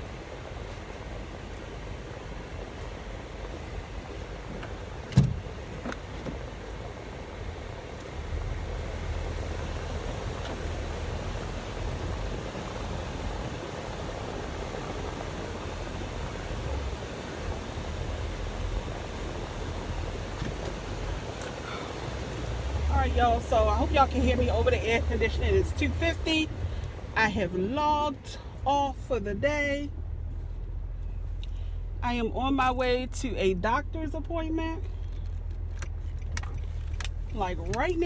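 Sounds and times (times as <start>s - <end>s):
air-conditioning blower: 0.0s - 25.6s
car engine running: 7.4s - 38.0s
low rumble: 28.4s - 38.0s.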